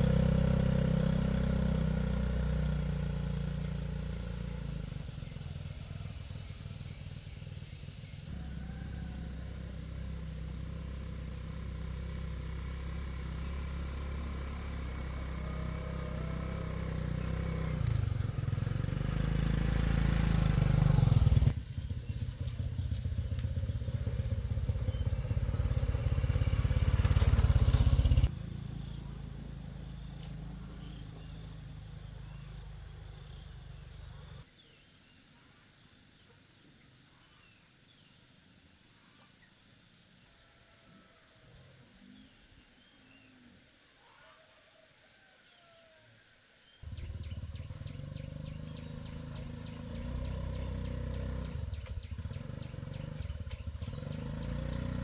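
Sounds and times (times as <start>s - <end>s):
engine running: 0.0s - 34.5s, 46.8s - 55.0s
low engine-like rumbling: 0.0s - 34.5s, 46.8s - 55.0s
insect chirring: 0.0s - 36.2s, 37.3s - 55.0s
bird chirps: 46.7s - 55.0s.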